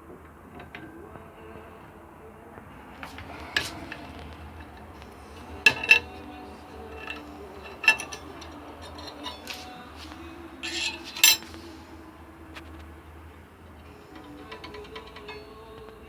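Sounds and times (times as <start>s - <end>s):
metallic clinks and knocks: 3.0s - 11.8s.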